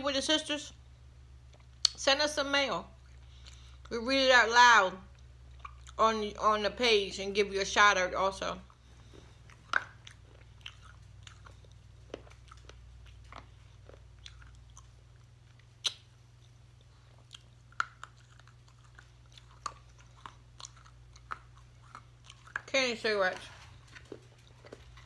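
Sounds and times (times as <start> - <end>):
candy crunching in mouth: 9.5 - 25.0.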